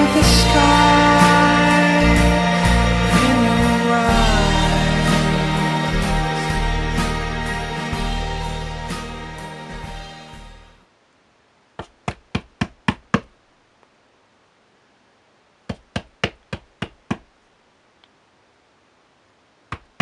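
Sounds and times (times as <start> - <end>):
knocking on a door: 11.8 - 13.3.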